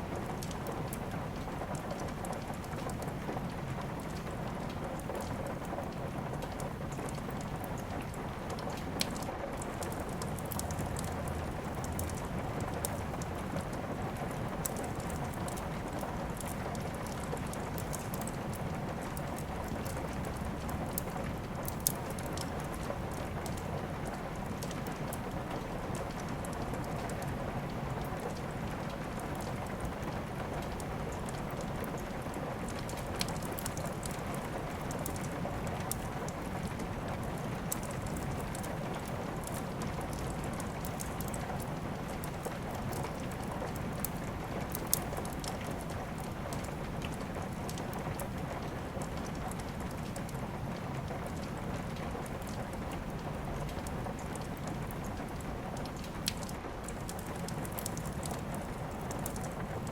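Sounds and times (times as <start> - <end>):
steady rain: 0.0 - 59.9
wood fire crackling and popping: 0.0 - 59.9.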